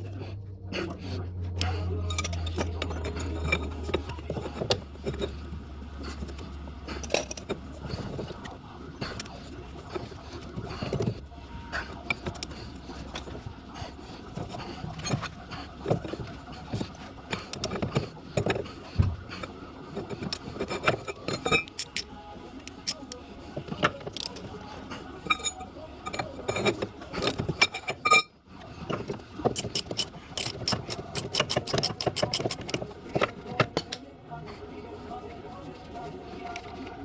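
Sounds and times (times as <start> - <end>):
low hum: 0.0 - 6.9
metal tools clinking and scraping: 0.7 - 8.5, 19.9 - 34.0.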